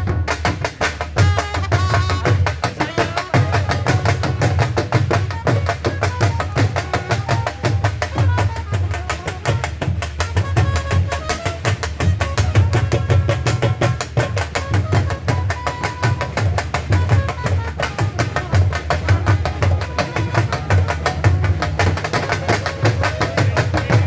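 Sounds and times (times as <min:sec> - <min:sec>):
dhol drumming: 0:00.0 - 0:24.0.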